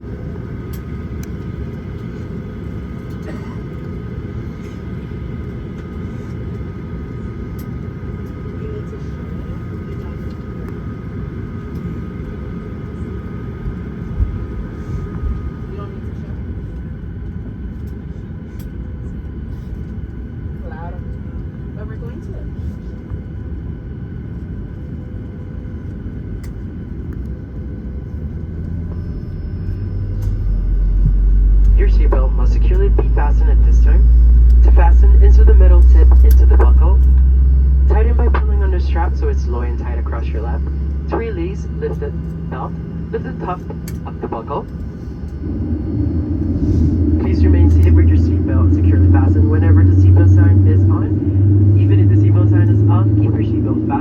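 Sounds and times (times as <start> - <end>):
airliner cabin rumble: 0.0 - 54.0
faint high hum: 25.7 - 54.0.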